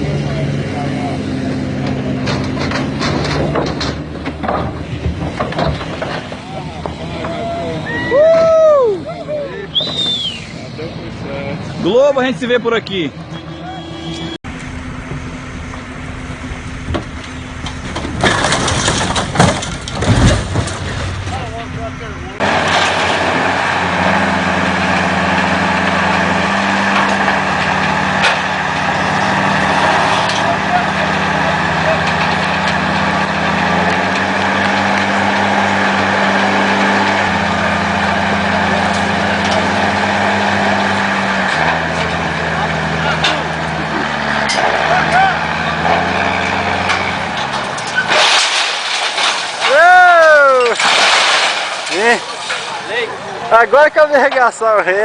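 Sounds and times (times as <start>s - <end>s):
engine running steadily: 0.0s - 50.6s
heavy thumps: 1.8s - 7.4s.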